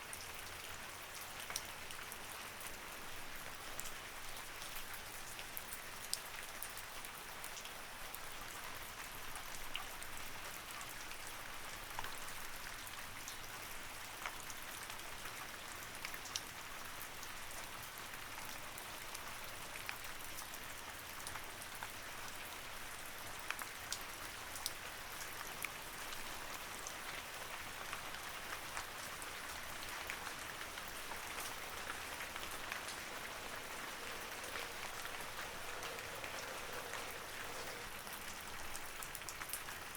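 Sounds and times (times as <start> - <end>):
steady rain falling: 0.0 - 39.9
raindrops ticking: 29.5 - 39.7.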